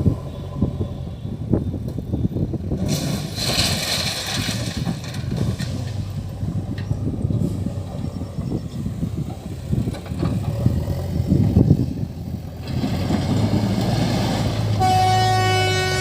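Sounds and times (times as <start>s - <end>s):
diesel engine working: 0.0s - 16.0s
long horn blast: 14.8s - 16.0s.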